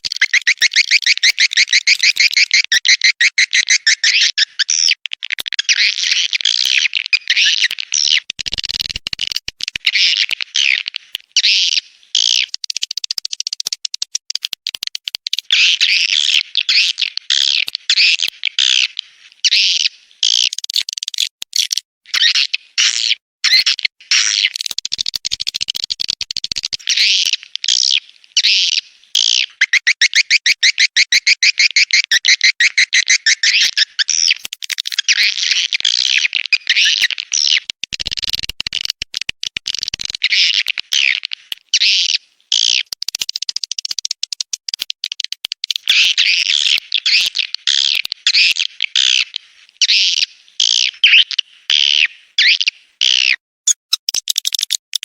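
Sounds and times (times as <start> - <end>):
swiftlets twittering chirps: 0.0 - 4.5.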